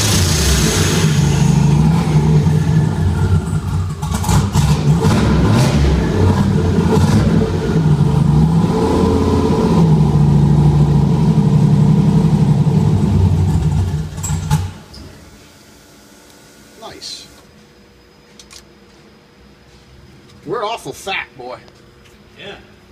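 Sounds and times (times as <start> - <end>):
turbocharged engine running: 0.0 - 14.8.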